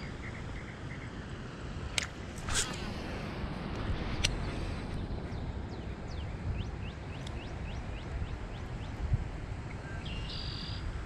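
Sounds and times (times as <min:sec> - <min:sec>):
wind rumbling on microphone: 0:00.0 - 0:11.0
bird whistling: 0:09.9 - 0:10.8.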